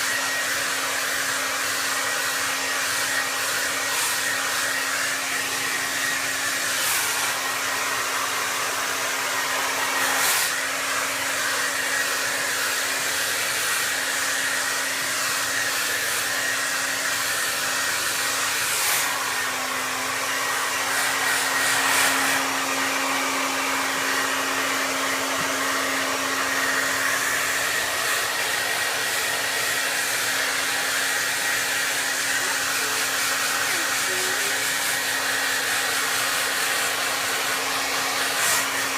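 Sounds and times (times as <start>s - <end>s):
hair dryer running: 0.0s - 38.9s.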